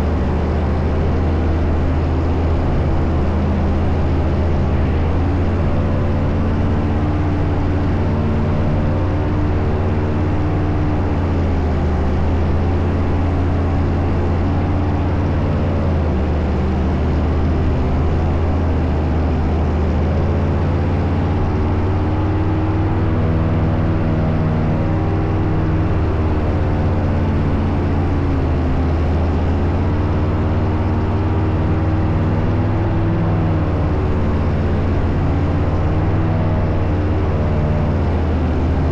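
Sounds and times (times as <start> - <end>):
paraglider engine and propeller: 0.0 - 38.9.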